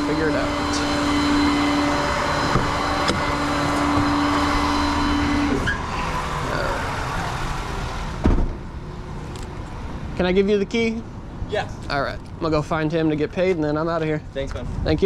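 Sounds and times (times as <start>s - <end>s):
truck engine running: 0.0s - 9.2s
steady whine: 0.0s - 11.2s.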